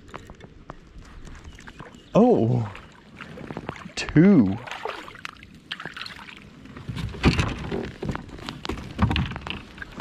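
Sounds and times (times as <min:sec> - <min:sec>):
knocks and clicks in a kayak: 0:03.4 - 0:04.3, 0:06.7 - 0:10.0.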